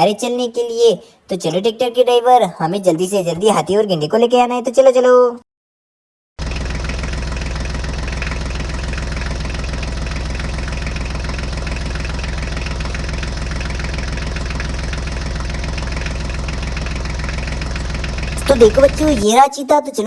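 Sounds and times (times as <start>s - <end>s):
tractor engine idling: 6.4s - 19.5s.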